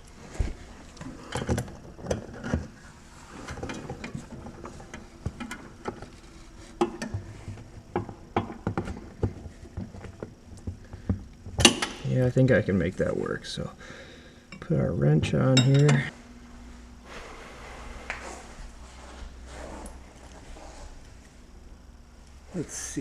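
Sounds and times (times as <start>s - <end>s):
hands and tools clicking and knocking: 3.4s - 12.1s.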